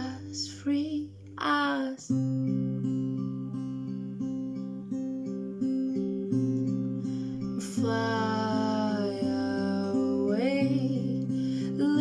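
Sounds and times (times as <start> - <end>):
plucked acoustic guitar: 0.0 - 12.0.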